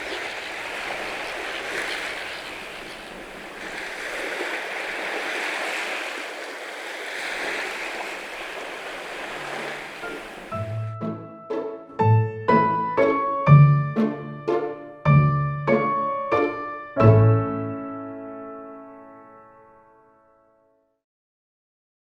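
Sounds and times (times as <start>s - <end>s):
sea waves washing on shore: 0.0s - 10.9s.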